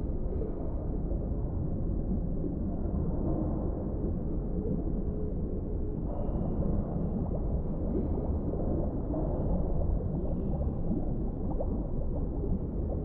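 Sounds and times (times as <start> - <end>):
low rumble of deep water: 0.0 - 13.0
bubbling gurgles: 6.5 - 13.0.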